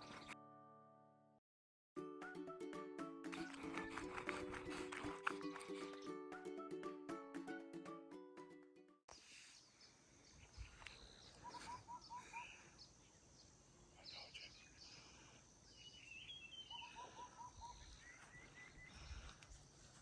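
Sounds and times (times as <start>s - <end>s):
faint birds calling: 9.1s - 20.0s
higher bird chirps: 9.2s - 19.2s.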